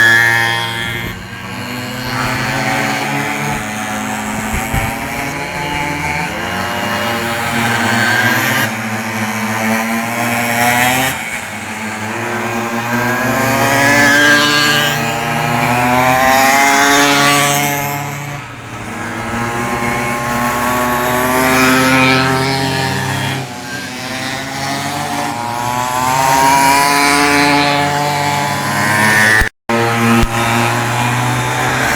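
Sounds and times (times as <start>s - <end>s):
small two-stroke engines revving: 0.0s - 31.9s.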